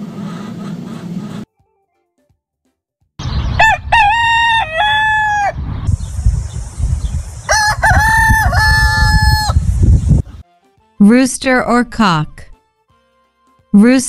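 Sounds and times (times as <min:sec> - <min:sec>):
rooster crowing: 0:03.5 - 0:05.6, 0:07.4 - 0:09.7.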